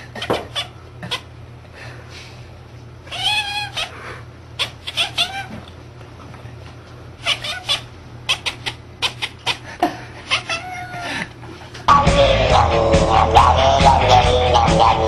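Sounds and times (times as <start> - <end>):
steady low hum: 0.0 - 15.0
cat meowing: 3.1 - 4.0, 4.6 - 5.6, 7.2 - 9.6, 10.3 - 11.0.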